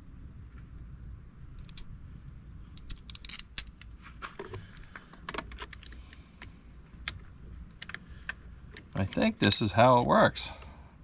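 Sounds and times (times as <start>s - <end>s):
low steady hum: 0.0s - 11.0s
metal parts clinking: 2.8s - 4.0s.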